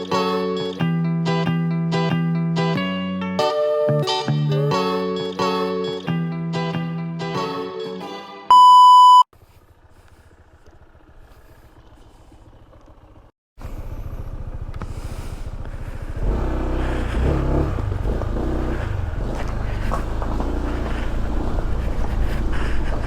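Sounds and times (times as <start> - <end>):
loud electronic beep: 8.5 - 9.3
motorcycle engine running: 9.3 - 23.0.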